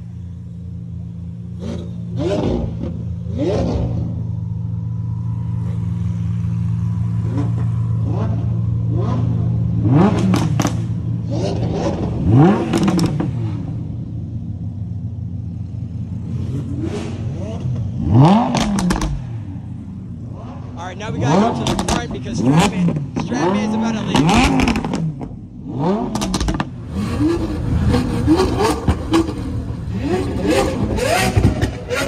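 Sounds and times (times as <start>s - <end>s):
supercar engines idling: 0.0s - 32.0s
sharp engine revs: 1.6s - 4.2s, 7.2s - 13.8s, 16.3s - 19.4s, 20.2s - 32.0s.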